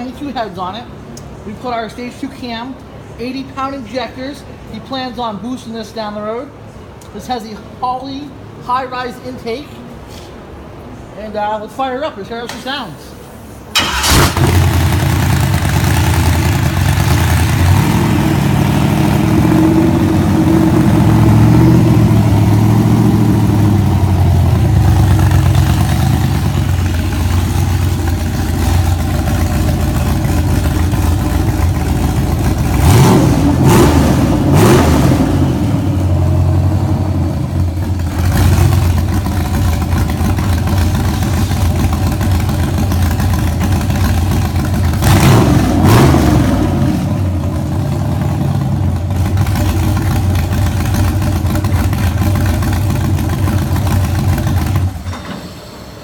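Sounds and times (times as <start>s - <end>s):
car engine idling and revving: 13.7s - 55.7s.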